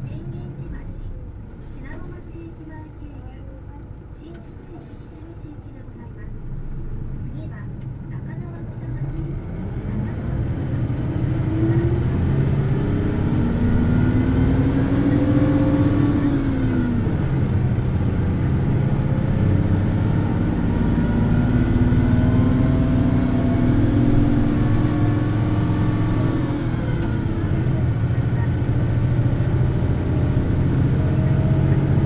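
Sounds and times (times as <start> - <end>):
bus diesel engine revving: 8.3 - 32.0.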